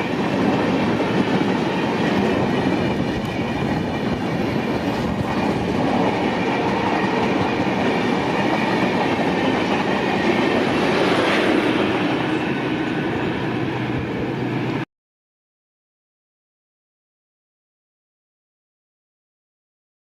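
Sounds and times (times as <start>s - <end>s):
clickety-clack over rail joints: 0.0s - 13.4s
train wheels rumbling on rails: 0.0s - 14.8s.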